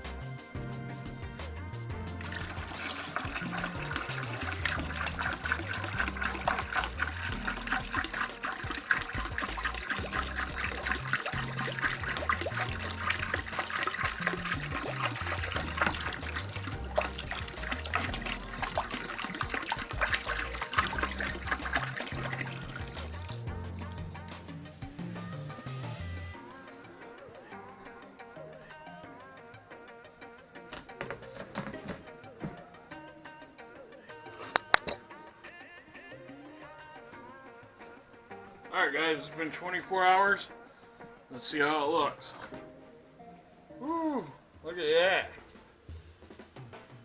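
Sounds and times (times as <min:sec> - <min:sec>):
background music with bass line: 0:00.0 - 0:41.7
water running from a tap: 0:02.2 - 0:24.7.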